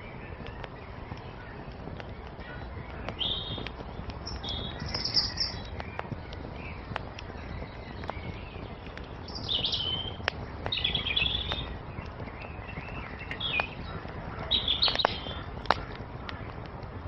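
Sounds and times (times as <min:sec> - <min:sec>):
songbirds chirping: 0:00.0 - 0:17.0
steady low rumble: 0:00.0 - 0:17.0
wood fire crackling: 0:00.0 - 0:17.0.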